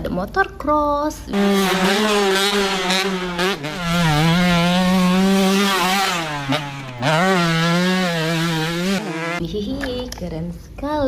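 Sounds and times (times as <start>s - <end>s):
dirt bike engine revving: 1.3s - 9.5s.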